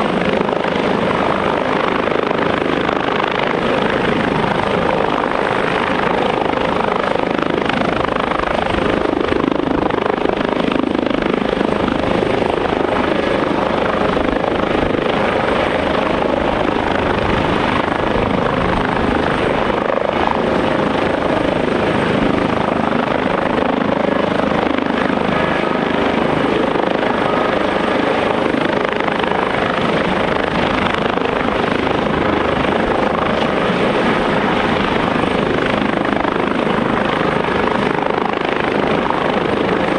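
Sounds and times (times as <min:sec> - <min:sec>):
helicopter engines and rotors: 0:00.0 - 0:39.9.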